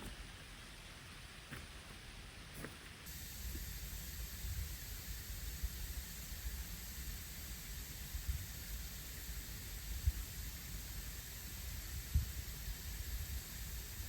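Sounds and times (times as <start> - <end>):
river flowing hiss: 0.0 - 14.0
soft low thumps: 11.6 - 13.5.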